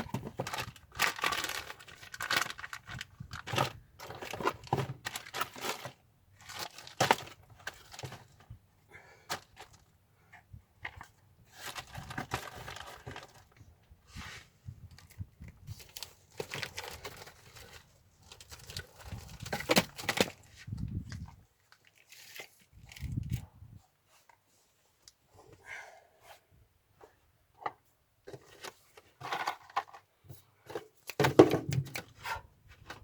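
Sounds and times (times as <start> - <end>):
material crinkling and tearing: 0.0 - 8.2.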